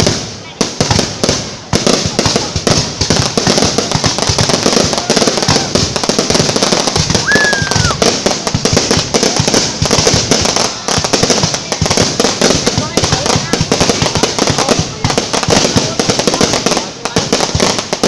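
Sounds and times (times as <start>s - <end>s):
fireworks bangs and crackles: 0.0s - 18.0s
firework whistle: 7.1s - 8.1s.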